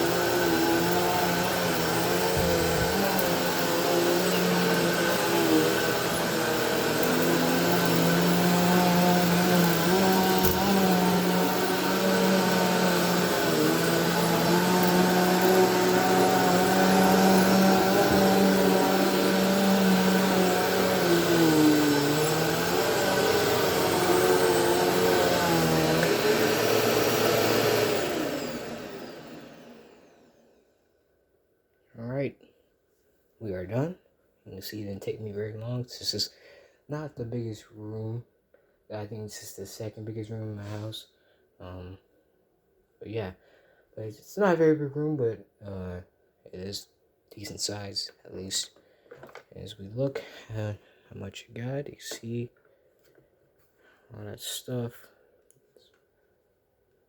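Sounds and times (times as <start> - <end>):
upright vacuum running on carpet: 0.0 - 30.6.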